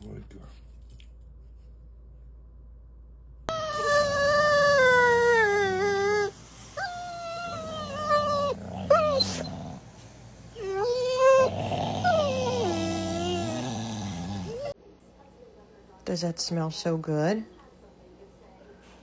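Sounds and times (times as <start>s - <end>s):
dog howling: 3.5s - 9.8s, 10.5s - 14.8s.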